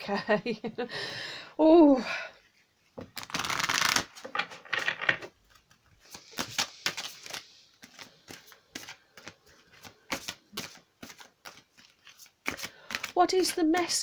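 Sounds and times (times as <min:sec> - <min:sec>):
cards being shuffled: 0:03.0 - 0:14.0.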